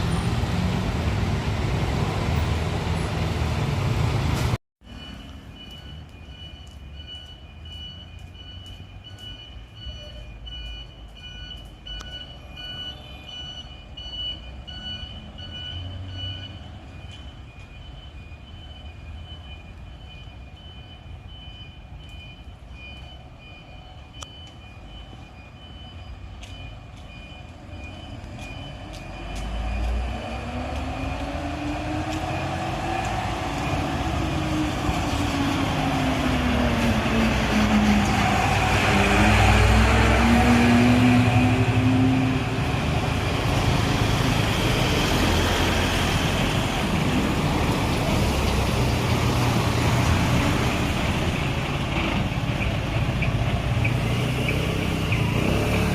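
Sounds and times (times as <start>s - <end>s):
high-pitched warning beeps: 4.9s - 32.8s.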